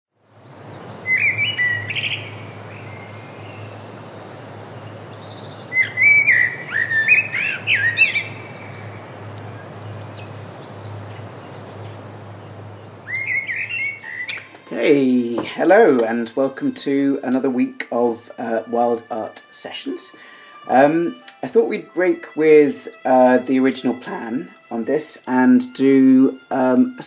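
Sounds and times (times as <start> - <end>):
bird chirping: 0.2 - 15.6.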